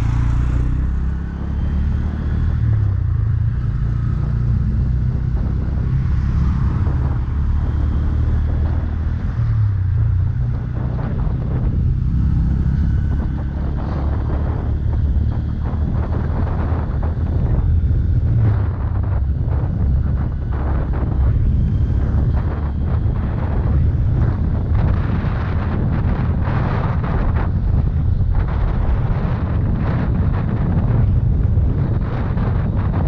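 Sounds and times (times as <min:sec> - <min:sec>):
motorcycle engine running: 0:00.0 - 0:06.0
wind noise on microphone: 0:00.0 - 0:33.0.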